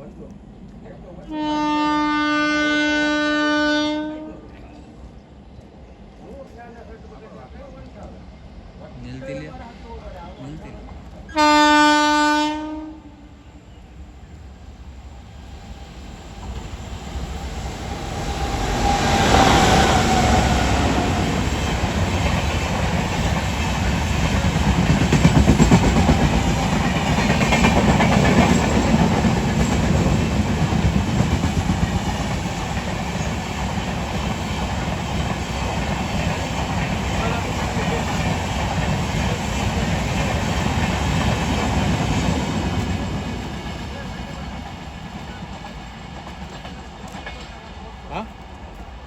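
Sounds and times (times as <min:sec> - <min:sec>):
train passing rumble: 0:00.0 - 0:49.0
locomotive horn: 0:01.3 - 0:04.5, 0:11.3 - 0:13.3.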